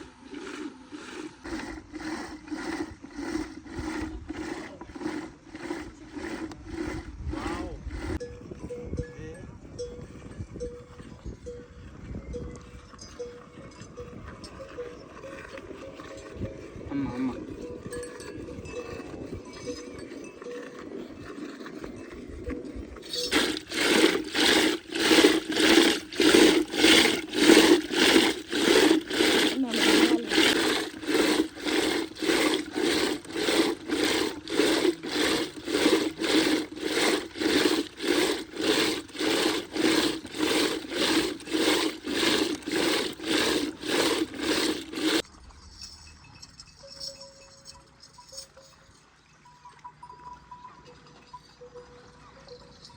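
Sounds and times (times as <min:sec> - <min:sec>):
rhythmic rubbing or scraping: 0:00.0 - 0:08.2, 0:17.4 - 0:46.0.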